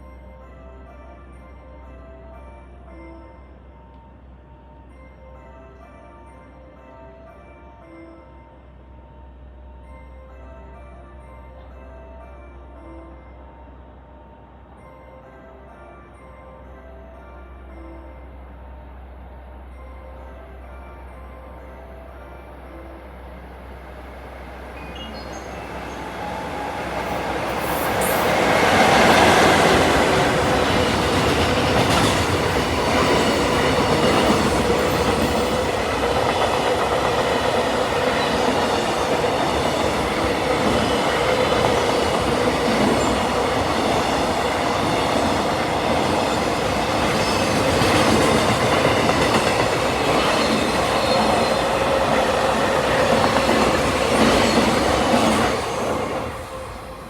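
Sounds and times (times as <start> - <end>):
train wheels rolling on rail: 23.7 - 57.0.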